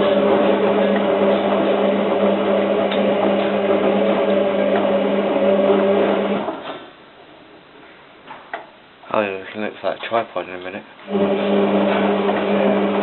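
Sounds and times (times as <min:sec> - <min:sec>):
washing machine motor hum: 0:00.0 - 0:06.8, 0:11.0 - 0:13.0.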